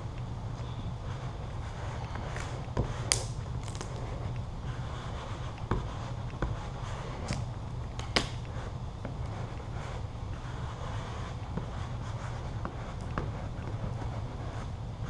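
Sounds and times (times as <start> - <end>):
steady low hum: 0.0 - 15.0
squeegee scraping vinyl film: 2.0 - 4.3.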